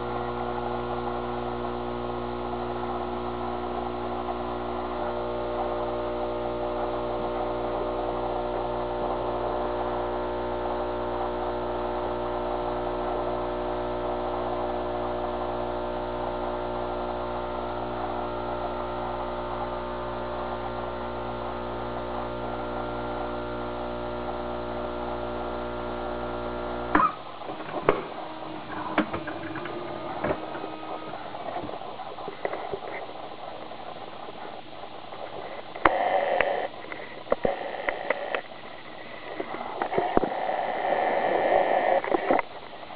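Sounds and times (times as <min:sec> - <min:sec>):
espresso machine pump humming: 0:00.0 - 0:42.9
sharp clicks and knocks: 0:26.9 - 0:33.1.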